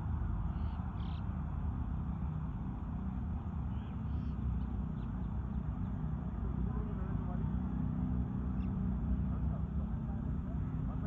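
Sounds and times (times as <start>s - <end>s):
low outdoor rumble: 0.0s - 11.0s
faint bird calls: 0.4s - 1.3s, 3.7s - 5.3s.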